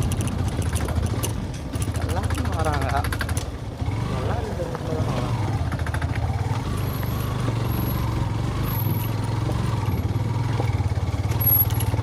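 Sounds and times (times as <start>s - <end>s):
motorcycle engine running at low revs: 0.0s - 12.0s.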